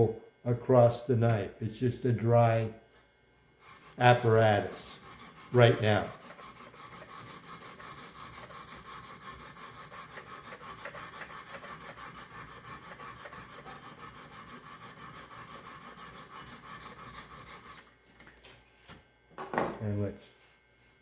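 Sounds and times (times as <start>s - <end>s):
stone scrubbing knife edge: 3.7s - 17.8s.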